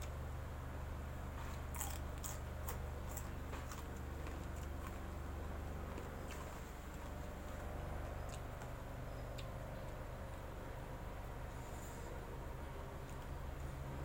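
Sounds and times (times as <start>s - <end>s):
steady low hum: 0.0s - 14.0s
person chewing crunchy food: 1.4s - 7.6s.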